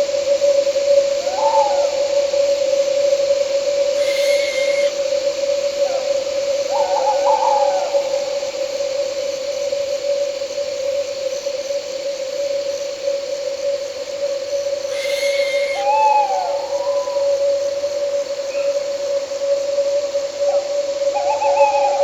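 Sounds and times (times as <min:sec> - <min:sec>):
drone of night insects: 0:00.0 - 0:22.0
owl hooting: 0:03.8 - 0:08.3, 0:14.6 - 0:18.8
high whistle: 0:04.0 - 0:05.0, 0:14.9 - 0:16.5.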